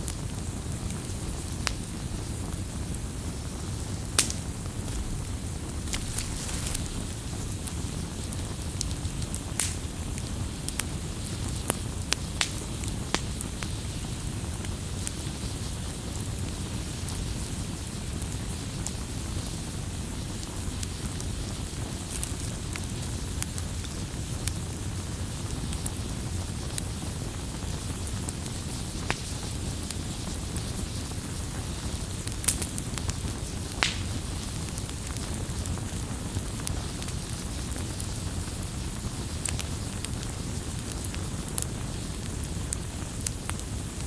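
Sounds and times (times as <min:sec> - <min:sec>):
fire crackles and pops: 0:00.0 - 0:44.0
firewood burning rumble: 0:00.0 - 0:44.0.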